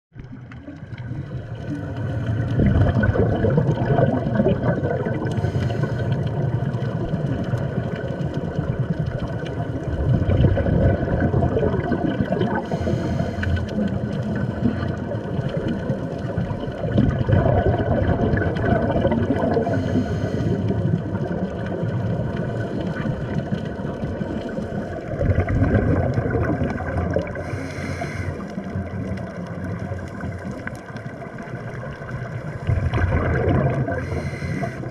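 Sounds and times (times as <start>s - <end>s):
bubbly underwater exhalation: 0.2s - 34.9s
regulator inhalation hiss: 5.3s - 6.2s, 12.6s - 13.6s, 19.7s - 20.6s, 27.4s - 28.4s, 34.0s - 34.9s.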